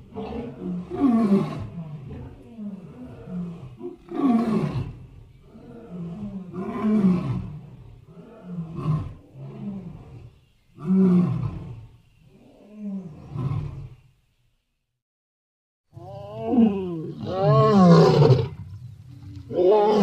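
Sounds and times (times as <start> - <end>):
lion roaring and grunting: 0.0 - 13.9, 16.0 - 18.6.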